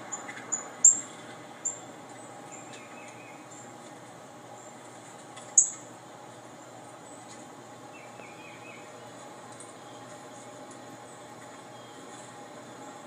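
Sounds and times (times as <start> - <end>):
small bird chirping: 0.0 - 1.9, 5.5 - 5.9.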